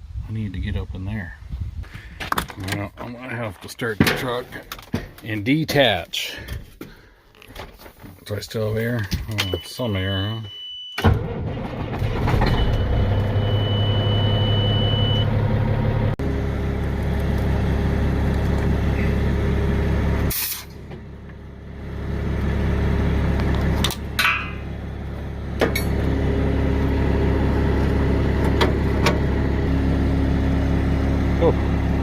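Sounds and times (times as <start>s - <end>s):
high steady beep: 9.3s - 11.0s, 12.6s - 15.3s
diesel truck engine idling: 12.8s - 32.0s
air release hisses: 20.3s - 20.7s.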